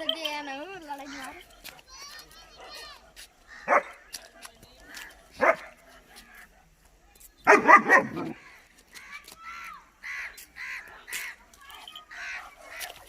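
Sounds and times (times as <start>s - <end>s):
puppy barking: 3.6s - 4.0s, 5.3s - 5.8s, 7.5s - 8.4s.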